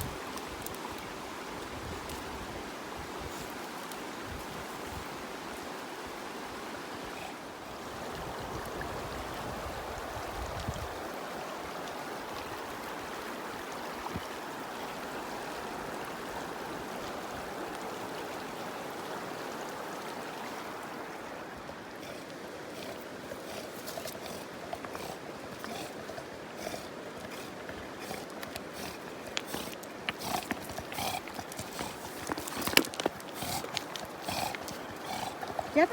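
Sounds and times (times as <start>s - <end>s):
stream rushing: 0.0s - 35.9s.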